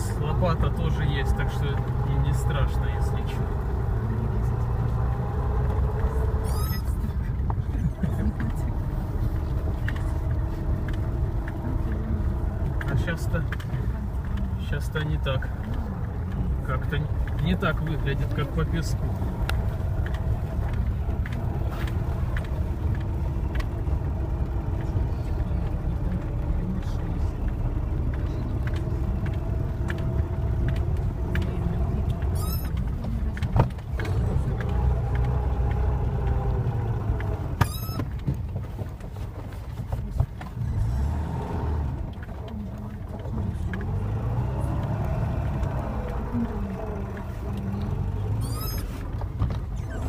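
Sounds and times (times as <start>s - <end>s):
car engine under load: 0.0s - 50.0s
brief high squeak: 6.4s - 6.9s, 32.3s - 32.7s, 37.6s - 38.1s, 48.4s - 49.0s.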